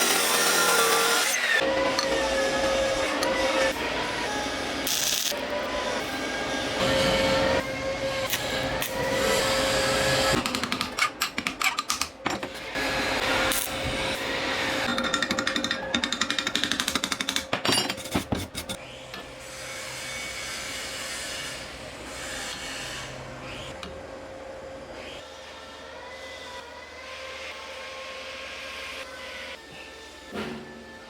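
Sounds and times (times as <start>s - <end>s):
tool scraping: 8.3s - 18.8s.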